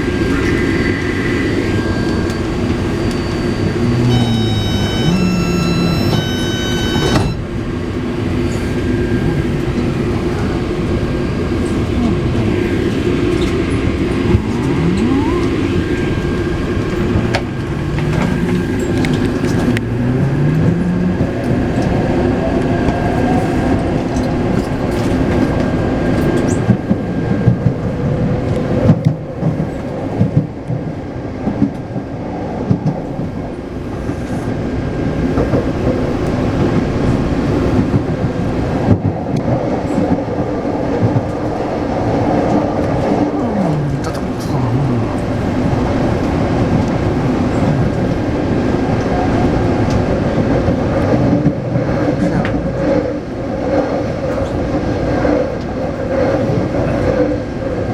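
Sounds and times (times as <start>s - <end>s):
rail noise: 0.0s - 57.9s
train motors whining: 0.2s - 22.0s.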